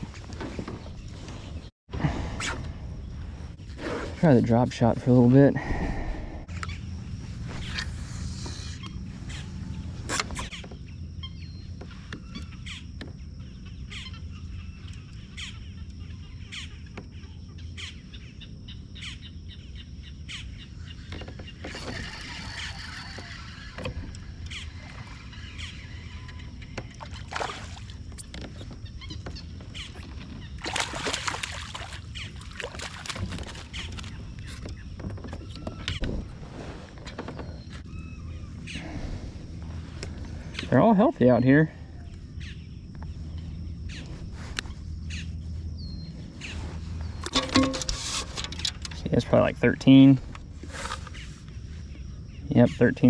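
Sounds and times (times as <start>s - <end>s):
steady low rumble: 1.6s - 10.1s, 33.7s - 52.5s
water splashing and sloshing: 21.1s - 37.8s
fishing tackle clicks and knocks: 47.2s - 49.1s.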